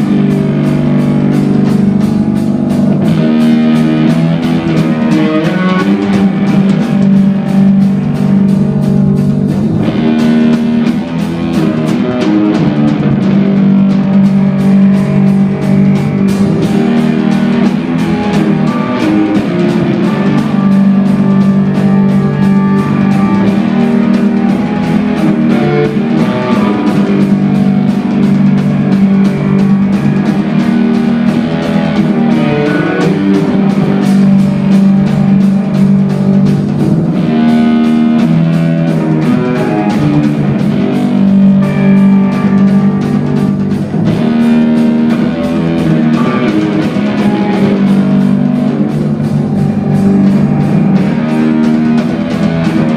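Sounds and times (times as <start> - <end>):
rapid drum strokes: 0.0 - 52.9
rock band playing: 0.0 - 52.9.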